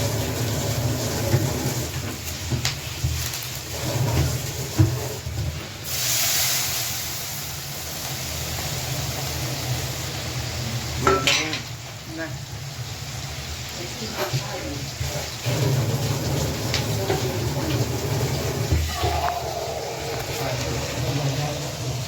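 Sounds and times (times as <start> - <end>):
food sizzling in hot oil: 0.0 - 22.0
utensil clinking on a pan: 11.0 - 11.8.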